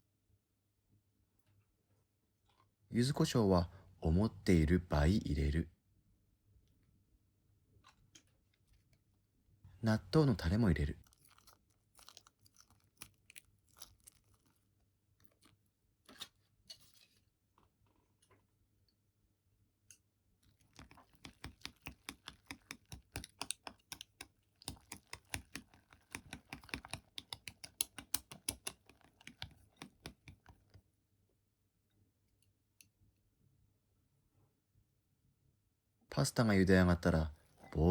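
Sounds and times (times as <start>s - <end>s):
packet handling: 20.5s - 30.8s
utensil clicking against bowl: 20.6s - 30.7s.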